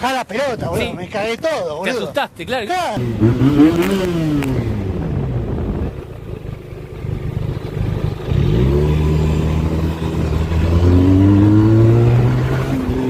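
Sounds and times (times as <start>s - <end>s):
motorcycle engine accelerating: 3.0s - 13.0s.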